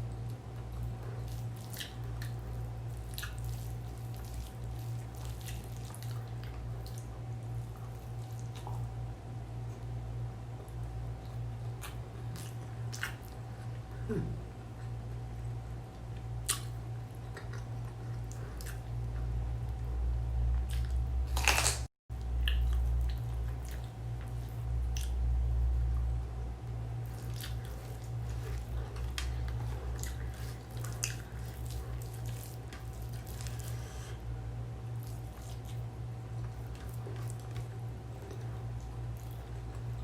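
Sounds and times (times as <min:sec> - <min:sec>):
person chewing food: 0:00.0 - 0:09.0, 0:10.6 - 0:13.9, 0:16.0 - 0:19.9, 0:20.5 - 0:25.2, 0:27.0 - 0:34.2, 0:34.9 - 0:40.0
steady low hum: 0:00.0 - 0:40.0
wet mouth clicks and smacks: 0:16.4 - 0:16.7.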